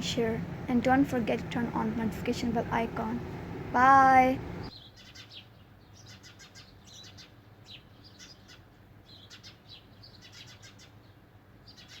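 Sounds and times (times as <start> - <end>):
faint low hum: 0.0 - 4.7
small birds chirping: 0.0 - 12.0.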